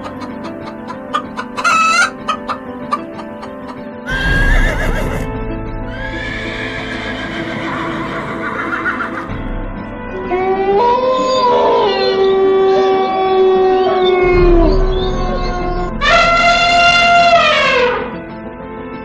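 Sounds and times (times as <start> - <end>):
animal calls: 0.0 - 5.3, 5.9 - 9.3
background music: 0.0 - 19.0.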